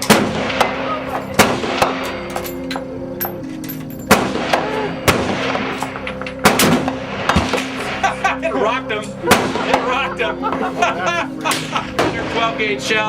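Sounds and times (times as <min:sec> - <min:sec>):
gunshots: 0:00.0 - 0:02.1, 0:04.1 - 0:08.0.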